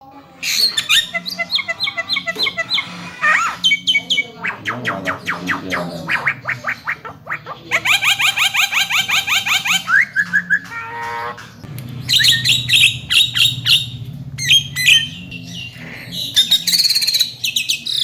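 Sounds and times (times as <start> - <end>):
bird whistles and chirps: 0.4 - 4.6, 7.8 - 18.0.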